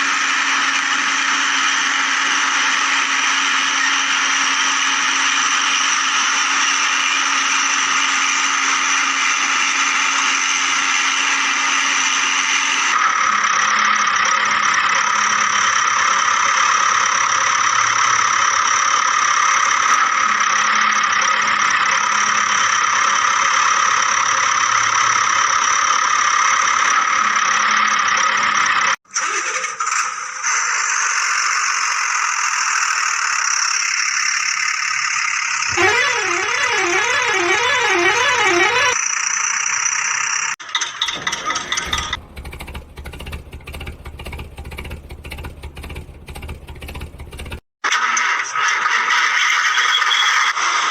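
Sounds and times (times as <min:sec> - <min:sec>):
engine-like running drone: 0:35.6 - 0:39.0, 0:41.1 - 0:47.6.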